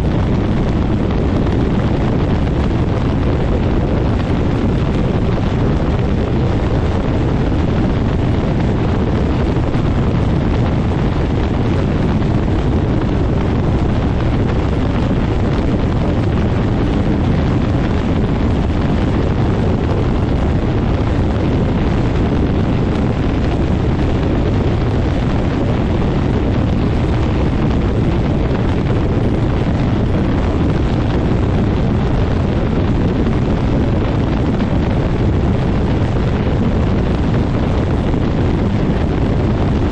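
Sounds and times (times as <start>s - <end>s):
aircraft engine running: 0.0s - 39.9s
propeller wind rush on microphone: 0.0s - 39.9s.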